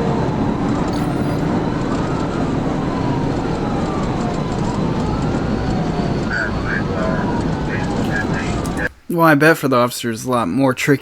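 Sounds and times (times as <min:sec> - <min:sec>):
car road and engine noise: 0:00.0 - 0:08.9
police siren wailing: 0:00.0 - 0:08.9.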